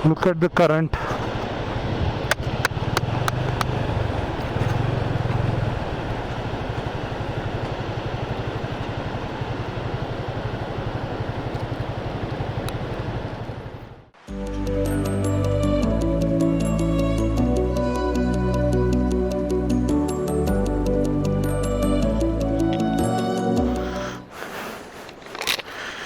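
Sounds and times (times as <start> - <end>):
motorcycle engine running: 1.4 - 14.2.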